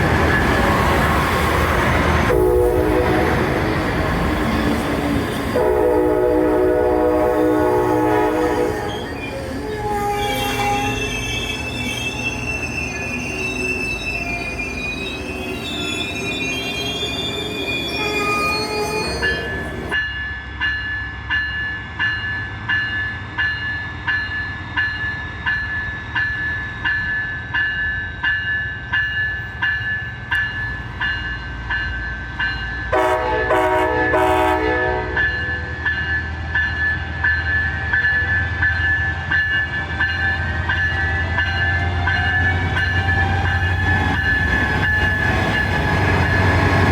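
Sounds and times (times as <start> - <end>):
train horn blast: 2.3 - 3.7, 5.5 - 11.3, 18.0 - 19.3, 32.9 - 35.8
train wheels squealing: 3.5 - 5.6, 8.6 - 30.0.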